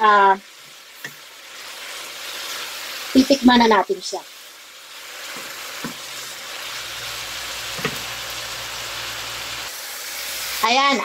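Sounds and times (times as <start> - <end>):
food sizzling in frying pan: 0.0 - 11.0
spatula knocking pan: 5.3 - 6.1, 7.7 - 8.1.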